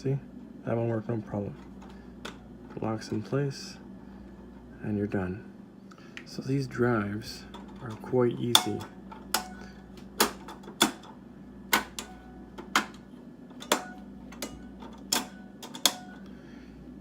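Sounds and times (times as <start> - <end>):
drive trays clicking and tapping: 1.5 - 3.2, 7.5 - 16.3.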